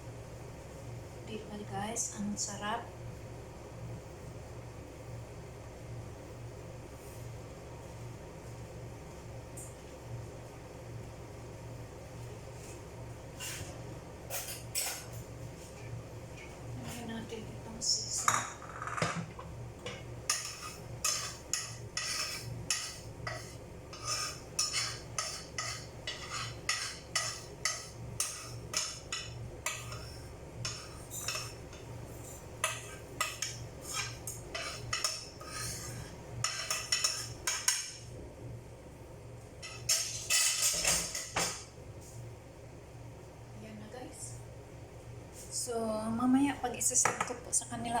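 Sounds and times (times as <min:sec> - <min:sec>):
metal utensil scraping pan: 0:20.3 - 0:31.6, 0:32.2 - 0:37.8.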